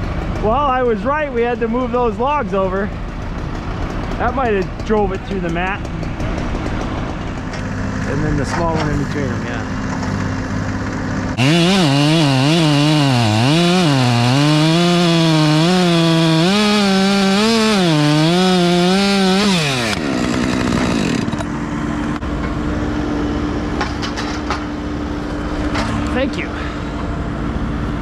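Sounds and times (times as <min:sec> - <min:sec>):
engine idle hum: 0:00.0 - 0:28.0
chainsaw cutting wood: 0:03.0 - 0:09.0, 0:10.9 - 0:21.6.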